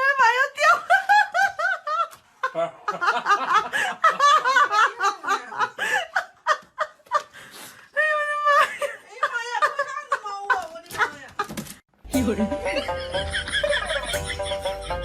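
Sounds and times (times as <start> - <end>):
high-pitched laughter: 12.2 - 15.0.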